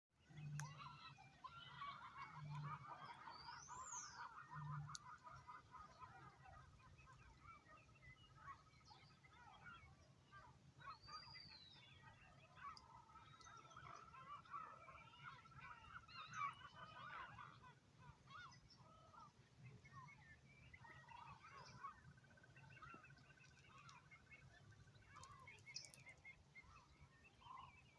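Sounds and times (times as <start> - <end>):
geese honking: 0.6 - 6.8.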